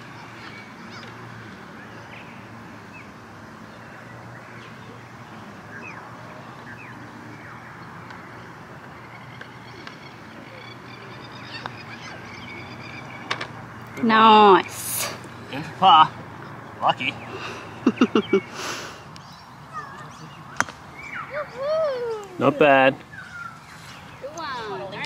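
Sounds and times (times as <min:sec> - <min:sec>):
bird chirps: 0:05.7 - 0:14.8, 0:16.1 - 0:22.0, 0:23.0 - 0:24.8.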